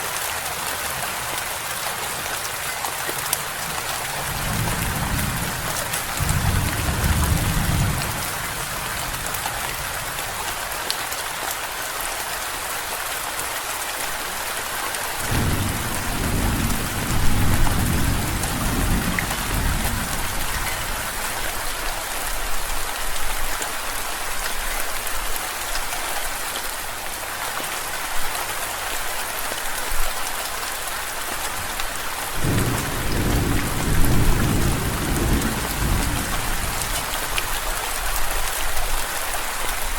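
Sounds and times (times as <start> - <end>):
steady rain falling: 0.0 - 39.9
thunder rumbling: 4.1 - 8.9, 15.3 - 21.3, 32.4 - 37.3.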